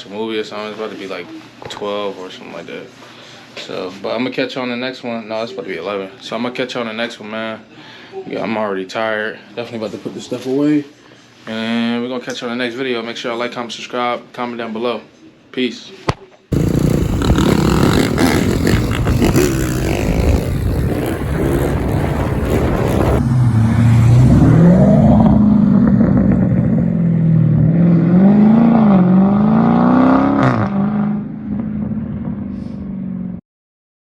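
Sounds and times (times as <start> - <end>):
car engine revving: 16.5 - 32.4.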